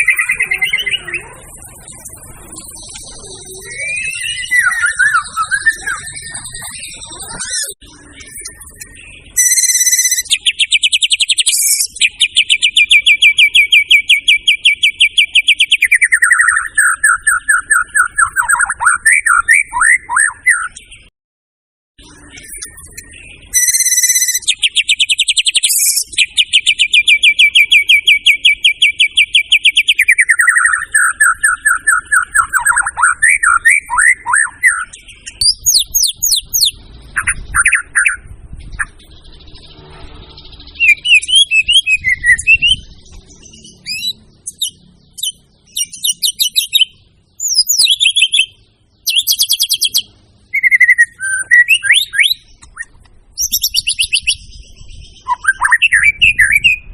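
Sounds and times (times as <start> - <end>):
songbird singing loudly: 0.0 - 21.1, 22.0 - 56.9.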